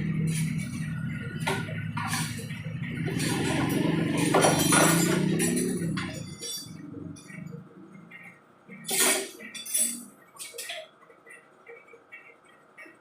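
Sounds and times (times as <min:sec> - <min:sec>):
metallic tool clinks: 0:03.1 - 0:07.5.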